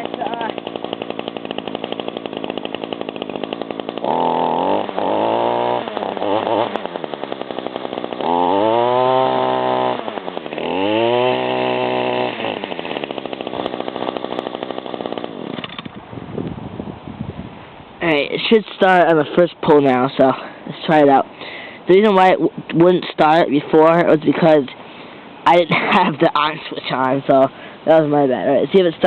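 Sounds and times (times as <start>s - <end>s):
small two-stroke engine revving: 0.0s - 16.3s, 18.0s - 24.6s.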